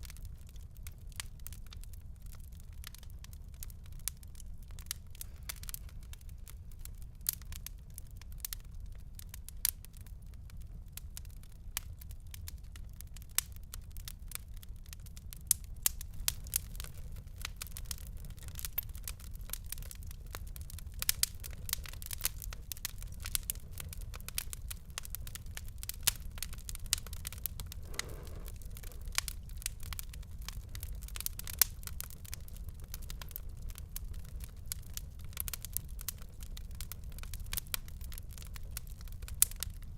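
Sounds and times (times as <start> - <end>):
fire crackling and popping: 0.0 - 39.9
low fire rumble: 0.0 - 39.9
soft hiss: 26.9 - 29.5.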